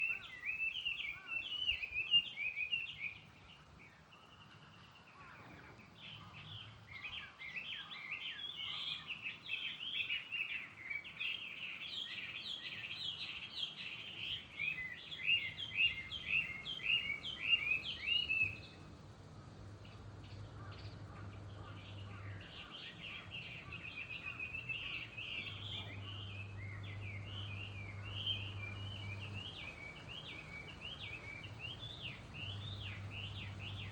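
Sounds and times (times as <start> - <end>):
small birds chirping: 0.0 - 33.9
faint low hum: 15.6 - 33.9.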